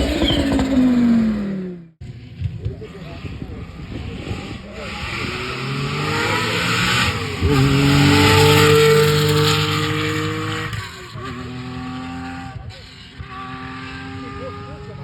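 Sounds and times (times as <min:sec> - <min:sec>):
rally car engine accelerating: 0:00.0 - 0:15.0.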